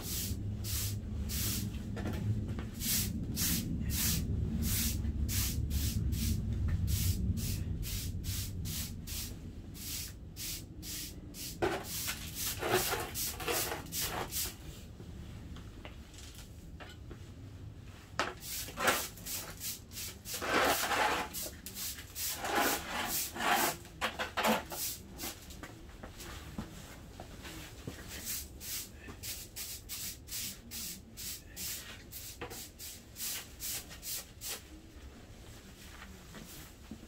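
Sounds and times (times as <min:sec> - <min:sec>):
rubbing and scraping on wood: 0:11.5 - 0:14.6, 0:18.2 - 0:25.5.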